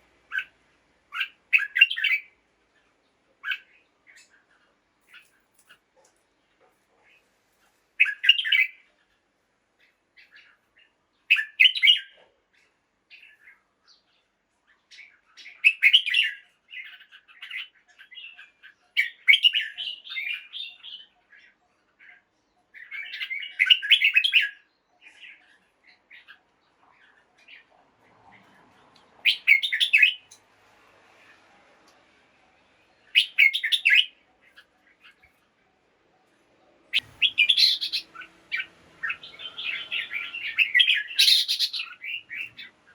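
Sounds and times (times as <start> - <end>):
bird song phrases: 0.0 - 6.0, 8.0 - 30.4, 31.1 - 42.9
soft bird chattering: 29.2 - 30.4, 33.1 - 35.4, 36.9 - 42.9.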